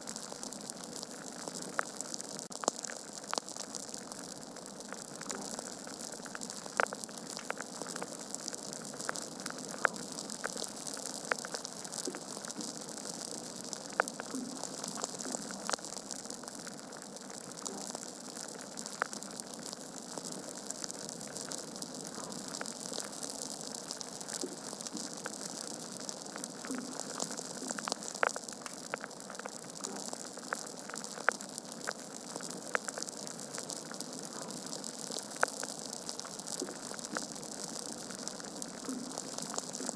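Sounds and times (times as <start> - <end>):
log fire crackling: 0.0 - 39.9.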